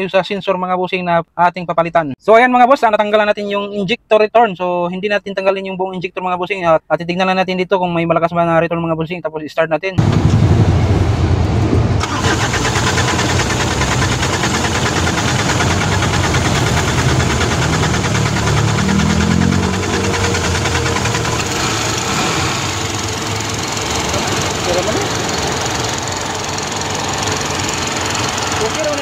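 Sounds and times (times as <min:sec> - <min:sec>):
diesel engine starting and running: 0:10.0 - 0:29.0.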